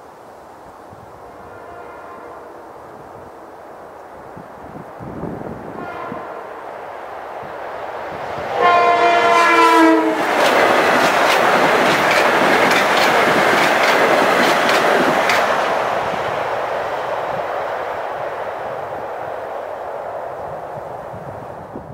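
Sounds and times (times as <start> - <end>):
train rumble: 0.5 - 21.9
train horn blast: 1.2 - 3.6, 5.5 - 6.7, 8.4 - 10.5
train wheels clacking over joints: 10.2 - 15.7.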